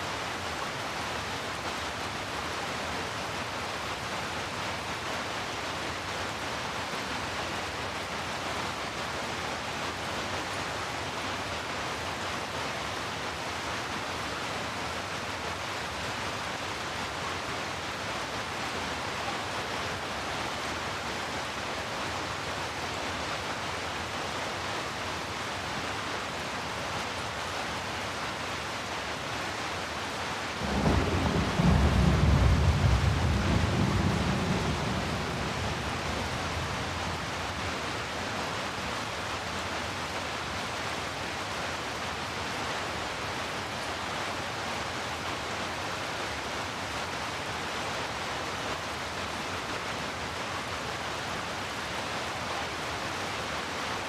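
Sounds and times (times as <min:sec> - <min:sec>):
steady rain: 0:00.0 - 0:54.0
thunder rumble: 0:30.6 - 0:37.4.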